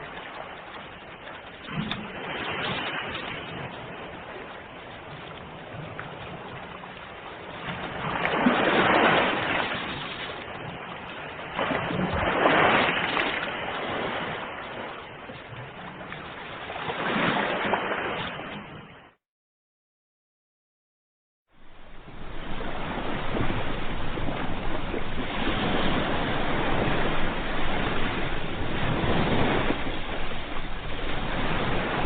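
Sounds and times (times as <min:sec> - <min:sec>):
ocean waves breaking on shore: 0:00.0 - 0:19.2, 0:21.5 - 0:32.0.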